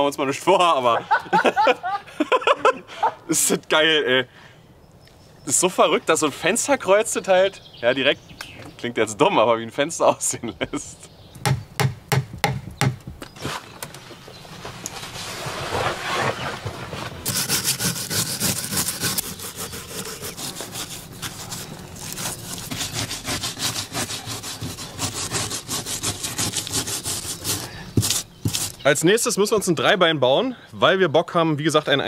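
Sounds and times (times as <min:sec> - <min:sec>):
hand saw cutting wood: 0:17.2 - 0:28.8.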